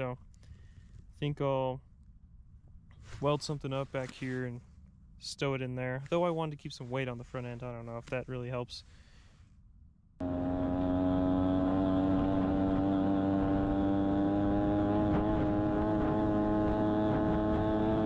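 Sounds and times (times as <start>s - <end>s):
two-stroke engine running: 10.2s - 18.0s.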